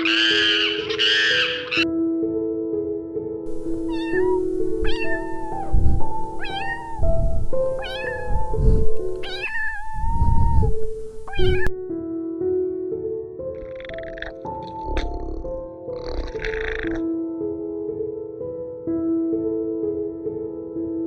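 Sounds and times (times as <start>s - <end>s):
cat meowing: 0.0s - 1.8s, 3.6s - 11.7s, 13.6s - 17.0s
background music: 0.0s - 21.0s.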